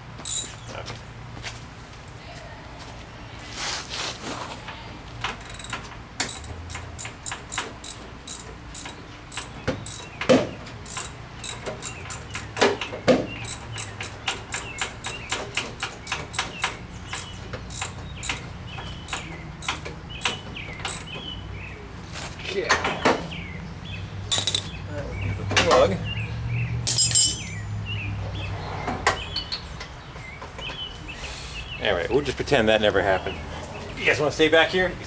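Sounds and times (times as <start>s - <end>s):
ratchet wrench clicking: 0.2s - 0.5s, 5.4s - 10.2s, 10.8s - 12.7s, 13.4s - 21.2s, 24.3s - 24.7s.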